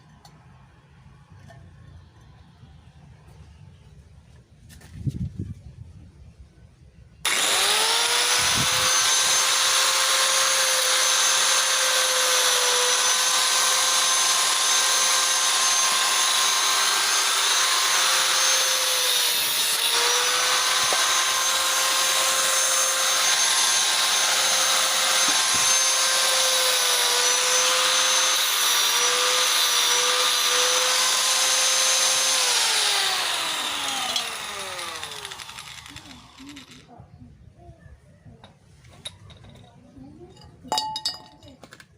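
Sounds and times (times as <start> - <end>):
angle grinder cutting steel: 7.3 - 36.9.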